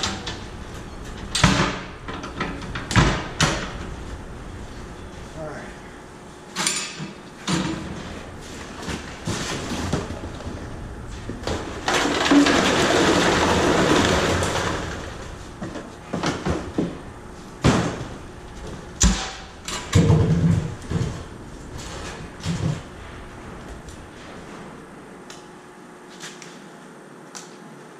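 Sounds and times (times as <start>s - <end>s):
knocks and clatter: 11.1s - 17.0s, 19.0s - 22.9s.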